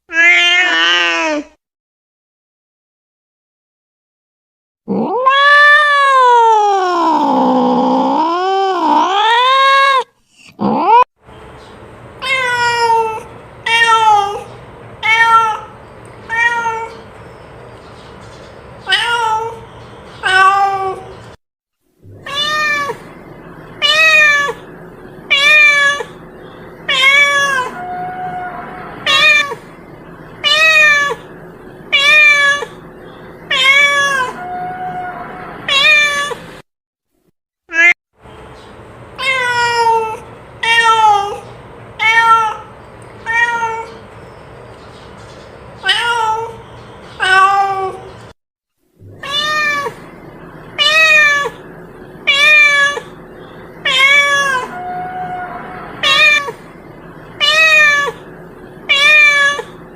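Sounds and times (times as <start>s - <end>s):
cat meowing: 0.1s - 1.5s, 4.9s - 11.0s, 12.2s - 17.0s, 18.8s - 19.6s, 20.2s - 21.1s, 22.1s - 23.1s, 23.8s - 24.6s, 25.3s - 26.2s, 26.9s - 29.6s, 30.4s - 31.3s, 31.9s - 32.8s, 33.5s - 36.4s, 37.7s - 38.0s, 39.2s - 41.4s, 42.0s - 44.0s, 45.8s - 46.6s, 47.2s - 48.1s, 49.1s - 50.1s, 50.8s - 53.2s, 53.8s - 56.7s, 57.4s - 59.8s.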